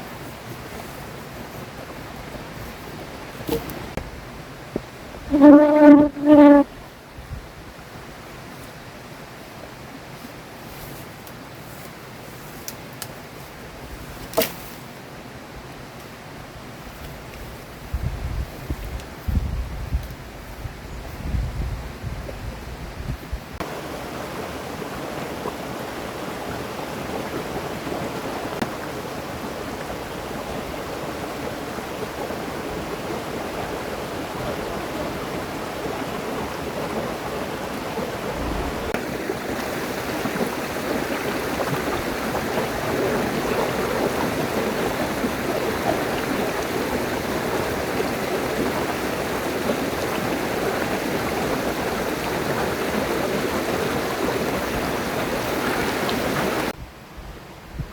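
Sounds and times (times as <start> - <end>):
river water rushing: 23.6 - 56.8.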